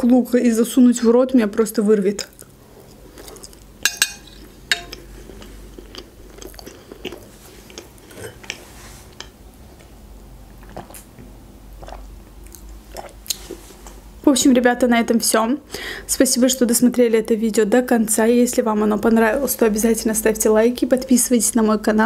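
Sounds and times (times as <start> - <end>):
chewing food: 4.7 - 13.6
wet mouth clicks: 11.8 - 13.5.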